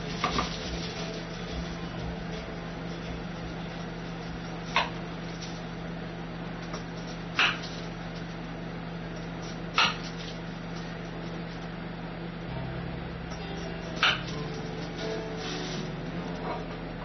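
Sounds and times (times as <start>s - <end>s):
kitchen appliance humming: 0.0s - 17.0s.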